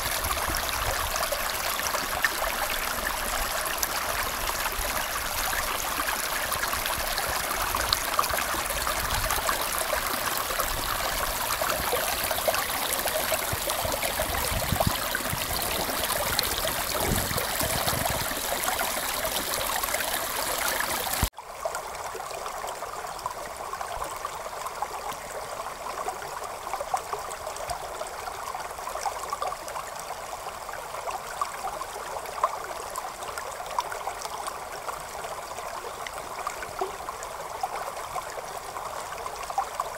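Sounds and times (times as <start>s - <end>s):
creek water running over rocks: 0.0s - 39.9s.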